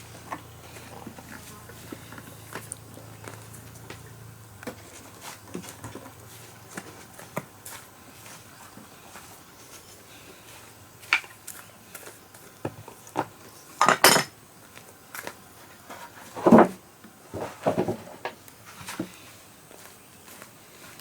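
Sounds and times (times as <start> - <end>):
knocks and clatters of hard objects: 16.3 - 18.4.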